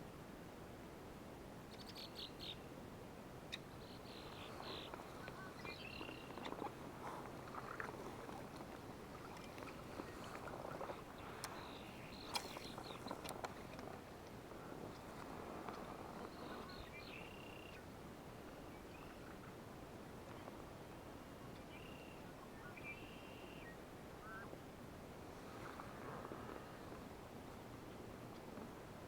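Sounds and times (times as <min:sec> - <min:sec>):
steady low hiss: 0:00.0 - 0:29.0
bird calls and chirps: 0:01.7 - 0:02.6, 0:03.5 - 0:17.9, 0:21.5 - 0:24.5.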